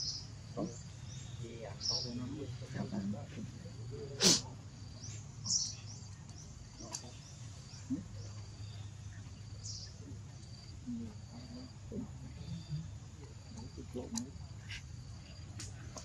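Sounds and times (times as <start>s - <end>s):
high chirping of insects or birds: 0.0s - 16.0s.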